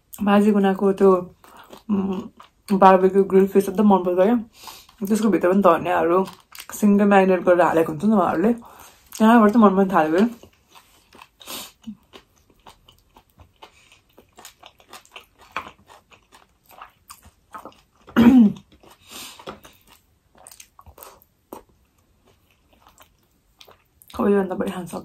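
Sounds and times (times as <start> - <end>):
person chewing food: 1.3 - 2.7, 6.2 - 6.7, 10.1 - 24.2.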